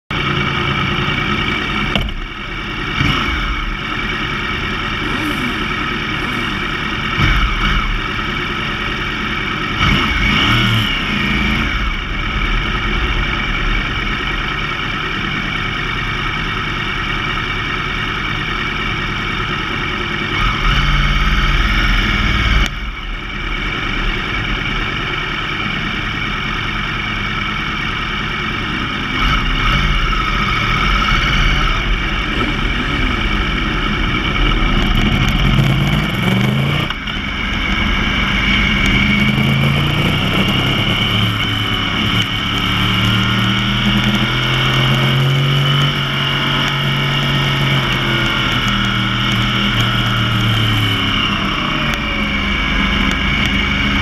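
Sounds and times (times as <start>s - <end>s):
motorcycle engines idling: 0.1s - 45.1s
motorcycle engine revving: 0.1s - 54.0s.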